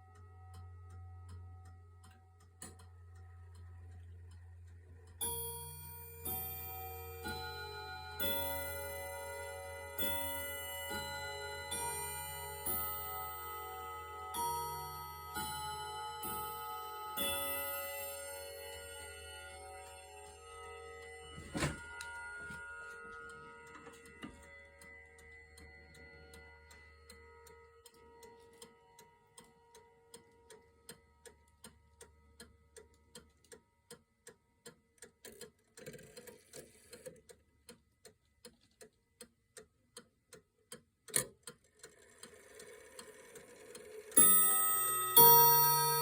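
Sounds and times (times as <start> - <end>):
clock ticking: 0.0 - 46.0
clock chime: 5.2 - 29.3, 43.9 - 46.0.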